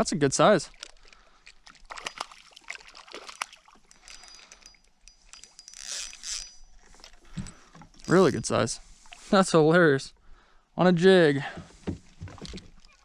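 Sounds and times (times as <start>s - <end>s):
water splashing and dripping: 0.0s - 4.3s.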